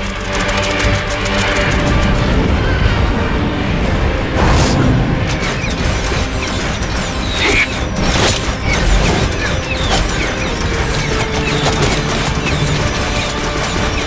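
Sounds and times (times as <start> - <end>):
metallic mechanical clatter: 0.0 - 2.2, 5.2 - 14.0
action soundtrack music: 0.0 - 14.0.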